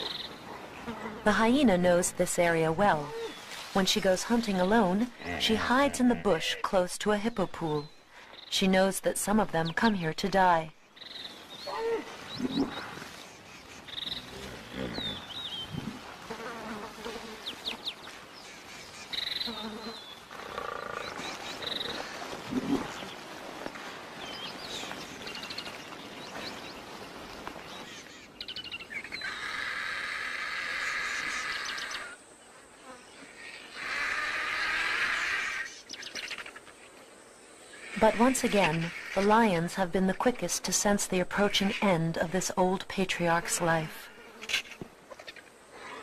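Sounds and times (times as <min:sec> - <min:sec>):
animal and bird calls: 0:10.8 - 0:16.4, 0:17.1 - 0:23.4, 0:24.2 - 0:32.2, 0:32.8 - 0:37.0
insect buzzing: 0:14.0 - 0:17.9, 0:19.2 - 0:21.2, 0:44.0 - 0:45.5.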